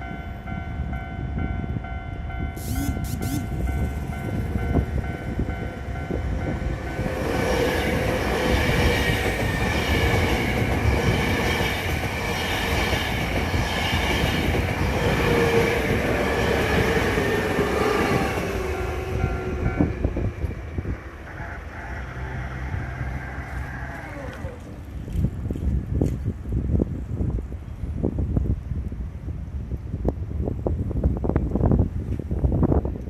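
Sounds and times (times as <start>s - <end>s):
level crossing warning bell: 0.0s - 7.2s
electric train passing: 0.0s - 25.0s
train wheels squealing on rails: 2.4s - 6.2s.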